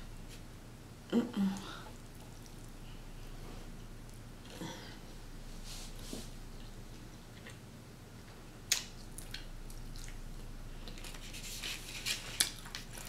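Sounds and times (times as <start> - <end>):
faint hum: 0.0 - 13.0
person chewing with mouth open: 1.9 - 3.0, 8.7 - 11.4.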